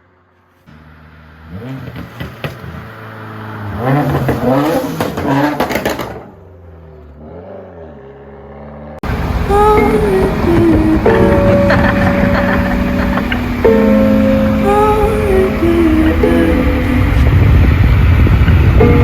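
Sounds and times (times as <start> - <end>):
car engine revving: 0.0 - 19.0
exhaust pops: 1.6 - 3.1, 3.8 - 6.5
music: 9.5 - 17.6, 18.6 - 19.0.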